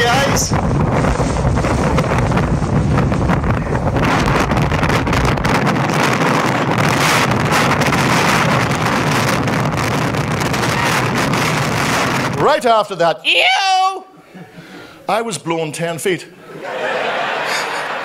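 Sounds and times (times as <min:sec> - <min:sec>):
wind blasting microphone: 0:00.0 - 0:12.8.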